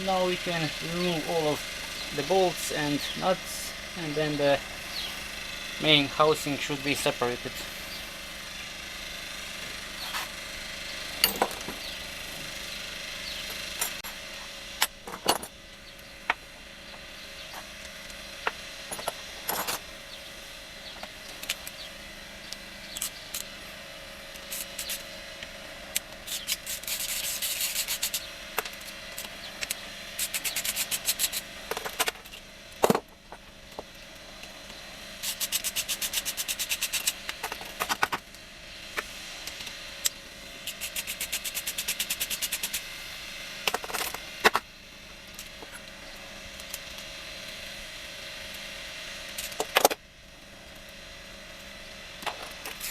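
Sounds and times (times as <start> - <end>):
metal clinks and knocks: 11.2 - 11.8
rapid ratchet clicking: 21.0 - 23.6, 24.3 - 45.9, 48.5 - 50.0, 52.1 - 52.9.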